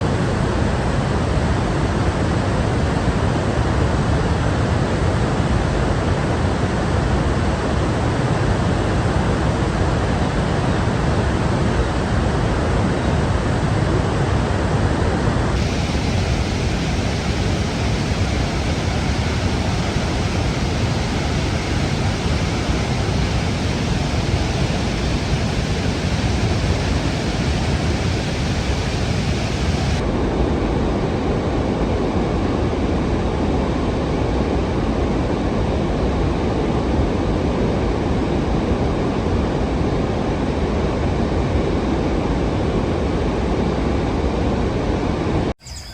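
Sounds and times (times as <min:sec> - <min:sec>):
steady rushing noise: 0:06.4 - 0:31.4.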